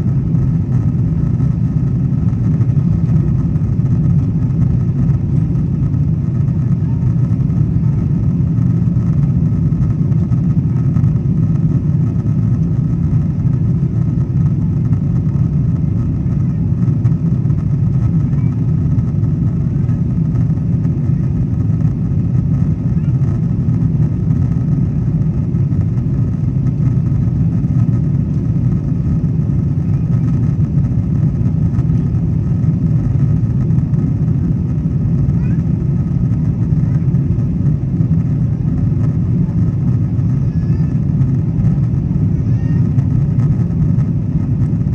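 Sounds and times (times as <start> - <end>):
airplane cabin engine drone: 0.0 - 44.9.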